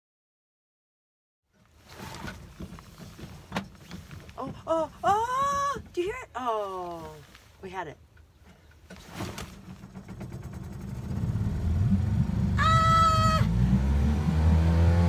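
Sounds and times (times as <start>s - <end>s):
outboard motor running: 9.3s - 13.6s.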